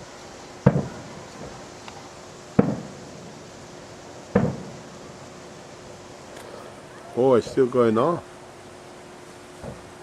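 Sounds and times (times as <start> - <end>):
fireworks bangs: 0.6 - 7.7.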